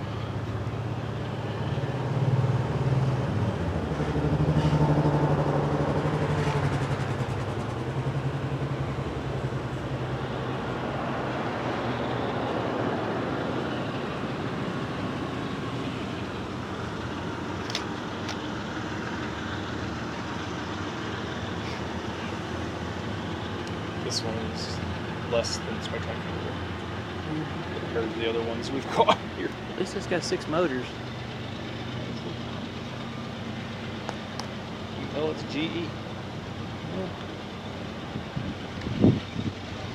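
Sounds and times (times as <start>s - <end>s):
locomotive diesel engine drone: 0.0s - 39.9s
sharp clicks: 17.6s - 18.5s.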